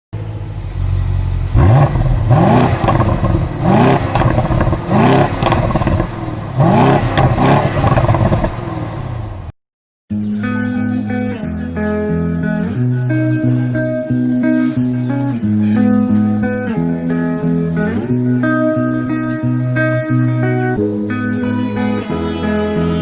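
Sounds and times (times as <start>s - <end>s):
car engine revving: 0.2s - 9.5s
guitar music: 10.1s - 23.0s.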